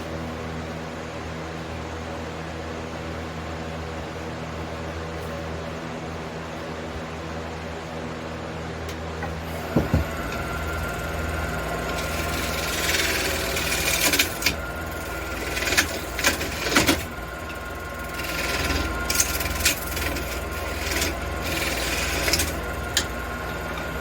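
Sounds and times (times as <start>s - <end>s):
hissing cuts on spinning wood: 9.4s - 24.0s
wood lathe humming: 9.4s - 24.0s.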